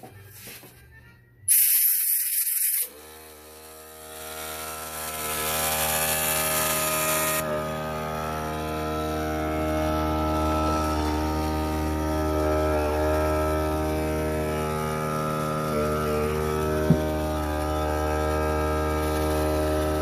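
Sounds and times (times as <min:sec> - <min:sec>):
loud hiss: 0:01.5 - 0:02.9
motor humming: 0:02.8 - 0:20.0.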